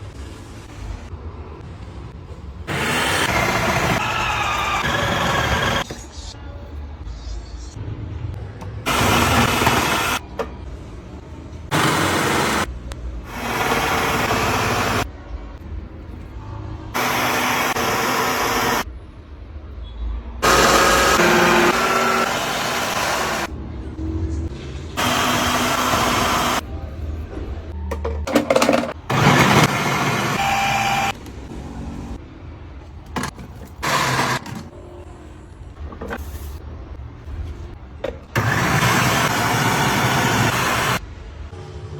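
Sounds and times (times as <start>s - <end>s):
electric mixer grinder motor: 2.7s - 6.0s, 8.9s - 10.2s, 11.7s - 12.7s, 13.3s - 15.0s, 17.0s - 18.8s, 20.4s - 23.5s, 25.0s - 26.6s, 28.7s - 31.2s, 33.8s - 34.6s, 38.4s - 41.0s.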